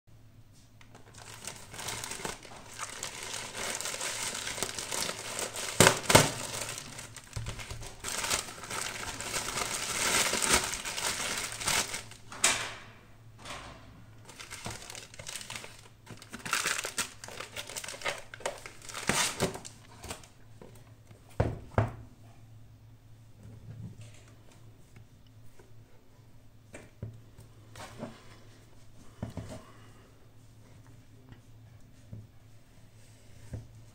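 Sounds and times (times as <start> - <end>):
packaging crinkling and rustling: 0.8 - 12.3, 14.2 - 20.4.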